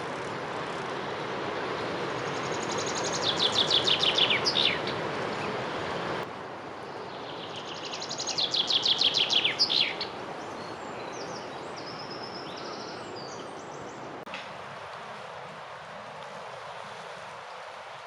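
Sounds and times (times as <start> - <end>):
songbird singing fast run: 0.0 - 6.2, 6.9 - 14.2
forest ambience hiss: 0.0 - 18.0.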